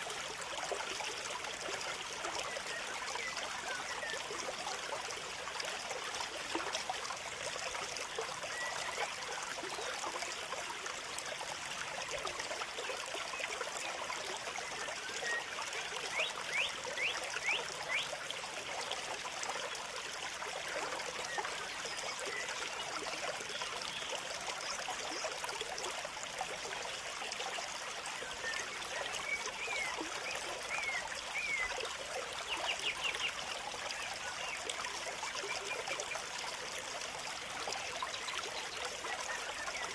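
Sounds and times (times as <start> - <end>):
trickling running water: 0.0 - 39.9.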